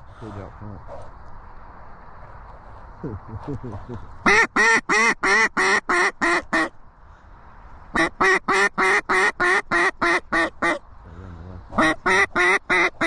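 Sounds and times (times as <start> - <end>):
duck call quacks: 4.2 - 6.7, 8.0 - 10.8, 11.7 - 13.0.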